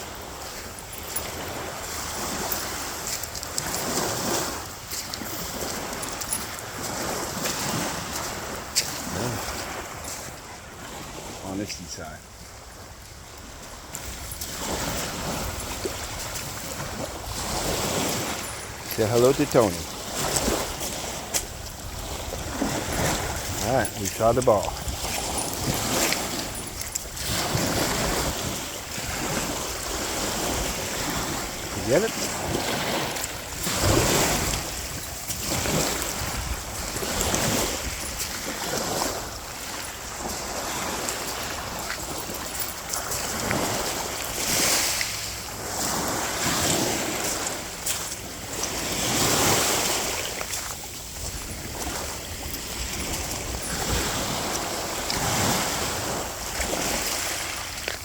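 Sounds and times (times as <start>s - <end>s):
surf washing onto shore: 0.0s - 58.0s
wind buffeting microphone: 12.5s - 42.2s, 51.0s - 57.1s.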